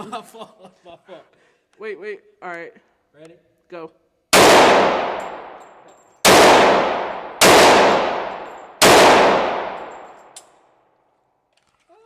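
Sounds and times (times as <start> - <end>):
pistol shots echoing indoors: 4.3 - 10.6.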